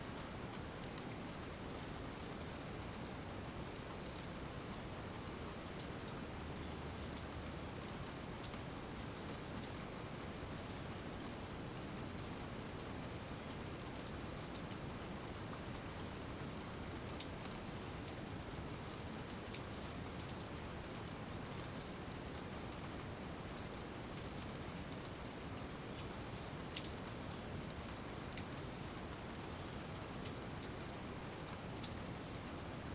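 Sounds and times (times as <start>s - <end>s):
steady rain hiss: 0.0s - 32.9s
raindrops ticking: 5.7s - 7.7s, 15.4s - 16.1s, 17.1s - 21.1s, 25.9s - 27.1s, 31.7s - 32.0s.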